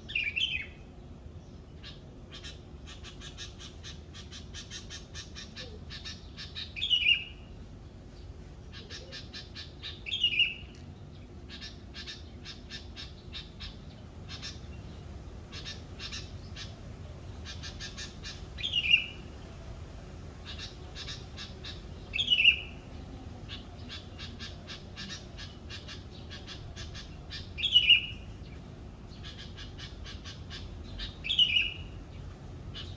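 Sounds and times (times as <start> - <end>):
fast bird chatter: 1.8 - 7.2, 8.7 - 10.5, 11.1 - 32.9.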